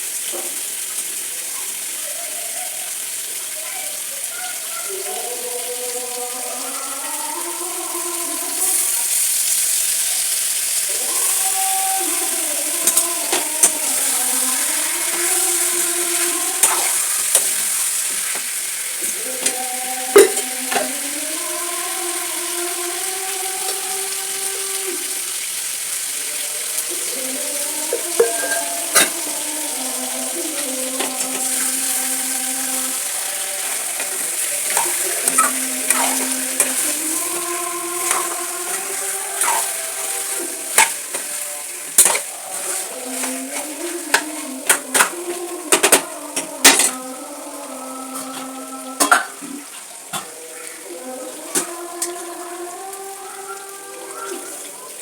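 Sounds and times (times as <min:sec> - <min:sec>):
curry sizzling in a pan: 0:00.0 - 0:55.0
faint wavering tones: 0:26.2 - 0:41.7.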